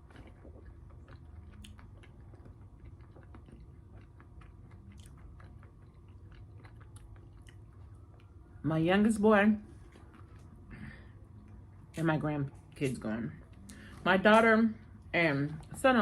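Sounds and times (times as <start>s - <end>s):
chewing food: 0.0s - 8.6s, 9.6s - 15.8s
low steady hum: 0.0s - 16.0s.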